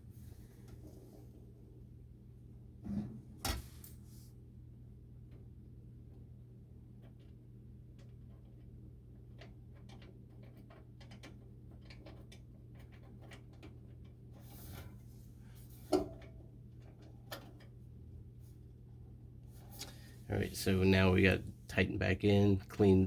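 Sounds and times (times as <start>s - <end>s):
steady low hum: 14.7s - 23.0s.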